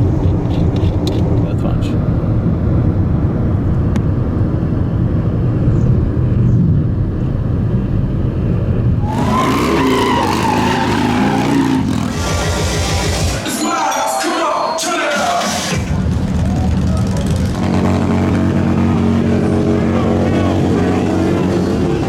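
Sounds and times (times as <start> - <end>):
motorcycle engines rumbling: 0.0 - 13.5, 15.5 - 22.0
rushing noise with squeal: 9.0 - 17.7.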